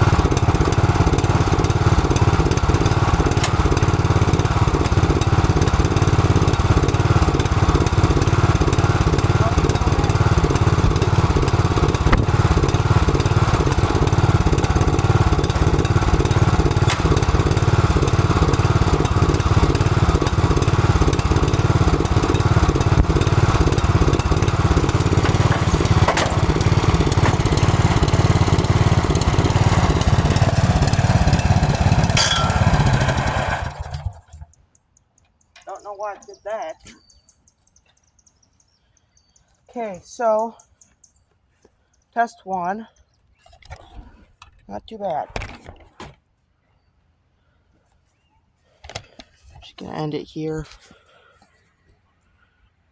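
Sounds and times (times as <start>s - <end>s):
lawn mower engine running: 0.0s - 36.5s.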